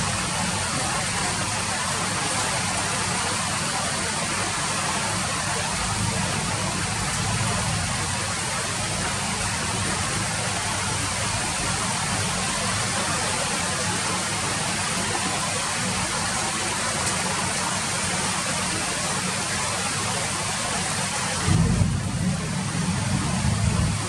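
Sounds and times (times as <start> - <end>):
steady rain hiss: 0.0 - 24.0
low rumble: 21.5 - 24.0.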